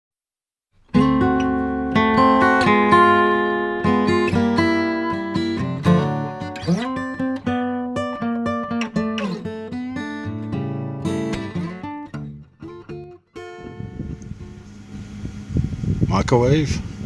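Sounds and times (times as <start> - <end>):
acoustic guitar music: 0.8 - 15.6.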